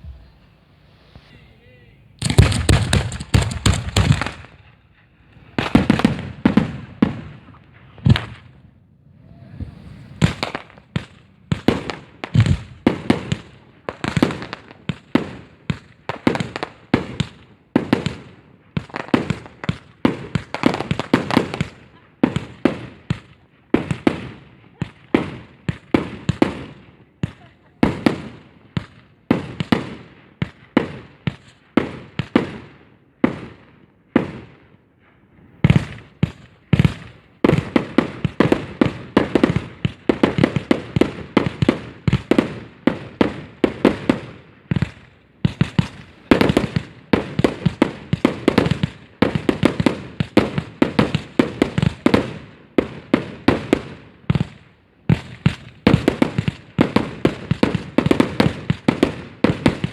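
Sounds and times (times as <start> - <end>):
fireworks shells bursting: 0.0 - 4.7.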